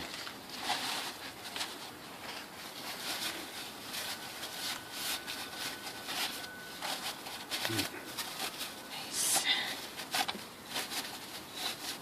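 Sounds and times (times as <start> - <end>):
rustling and handling noises: 0.0 - 12.0
faint steady high tone: 2.0 - 12.0.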